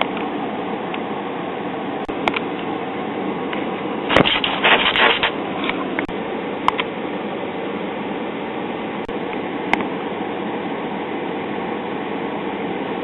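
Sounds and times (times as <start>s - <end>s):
radio static hiss: 4.1s - 5.4s
sharp radio crackles: 4.1s - 5.4s.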